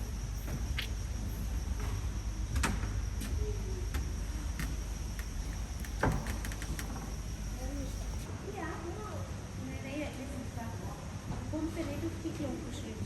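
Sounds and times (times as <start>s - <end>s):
short clicks and knocks: 3.9s - 7.1s.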